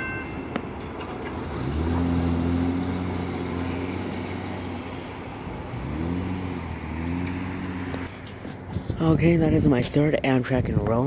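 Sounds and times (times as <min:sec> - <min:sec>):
vehicle engine accelerating: 0:01.2 - 0:09.0.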